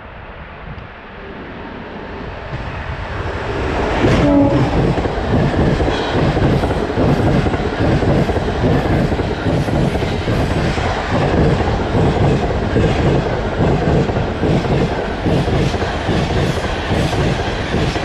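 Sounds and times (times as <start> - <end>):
train wheels rumbling: 0.4 - 18.0
clickety-clack over rail joints: 4.0 - 18.0.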